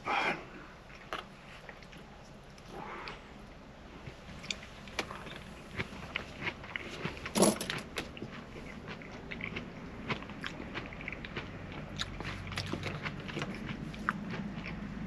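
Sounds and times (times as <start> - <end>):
low steady hum: 0.0 - 15.0
person chewing: 0.8 - 15.0
crunch: 4.0 - 15.0.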